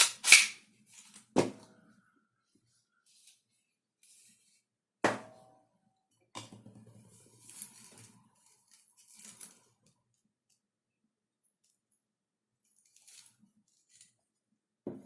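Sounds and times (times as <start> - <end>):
parts clattering and rubbing: 0.0 - 1.2.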